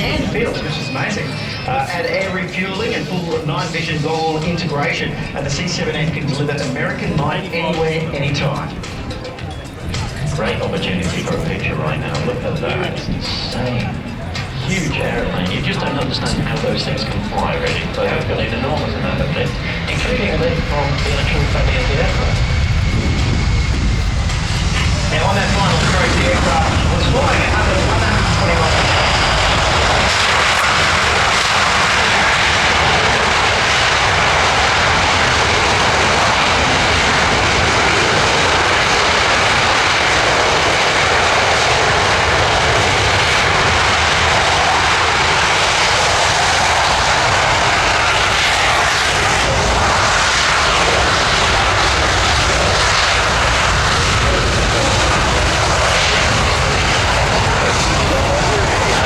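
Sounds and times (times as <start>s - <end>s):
jet engine noise: 0.0s - 59.0s.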